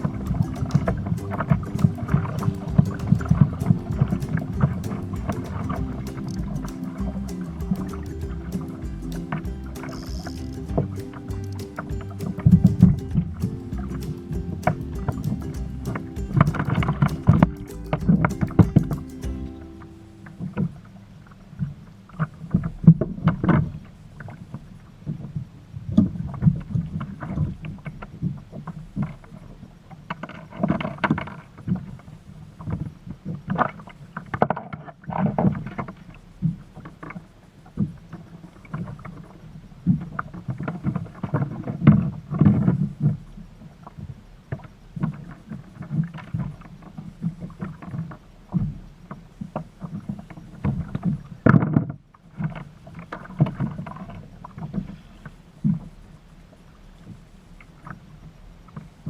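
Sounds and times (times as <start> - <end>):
knocks and splashes: 0.0 - 19.4.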